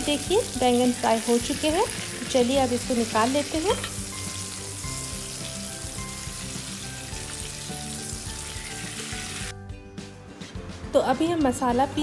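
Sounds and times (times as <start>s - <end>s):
vegetables sizzling in hot oil: 0.0s - 9.5s.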